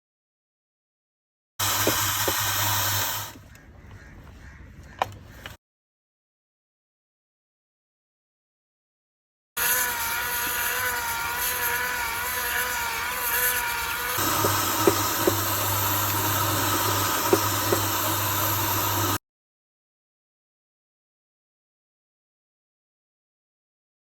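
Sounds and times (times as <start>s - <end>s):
floor machine motor whine: 14.2s - 19.2s.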